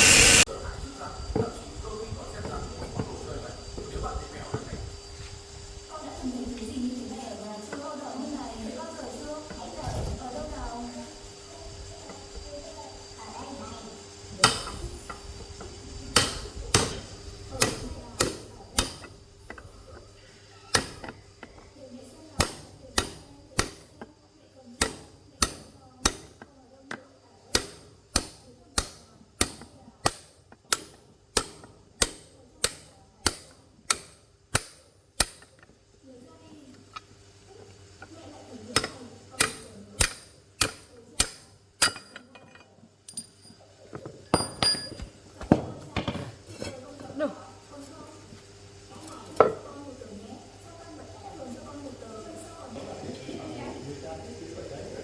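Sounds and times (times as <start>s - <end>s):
hammer striking metal: 17.6s - 19.1s, 20.7s - 21.1s, 22.4s - 23.9s, 24.8s - 26.3s, 38.8s - 42.2s.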